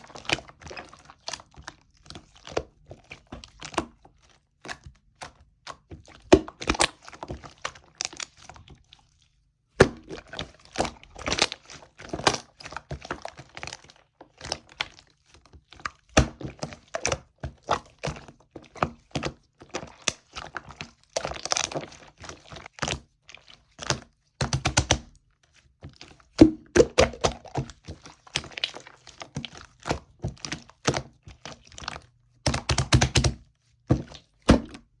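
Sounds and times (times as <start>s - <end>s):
slime squeezed by hand: 26.4s - 27.7s.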